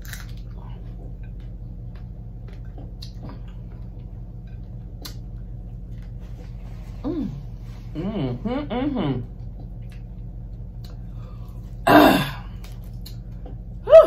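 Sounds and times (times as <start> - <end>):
chewing crispy chicken: 0.0 - 6.2
low hum: 0.0 - 14.0.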